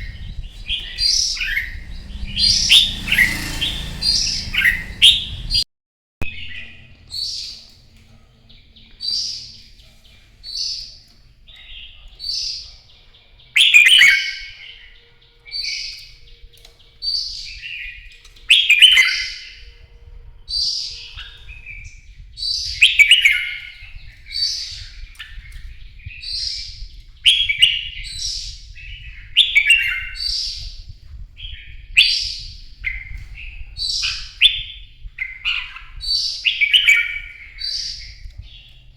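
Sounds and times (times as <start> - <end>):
bulbul singing whistled phrases: 0.0 - 5.6, 13.4 - 38.9.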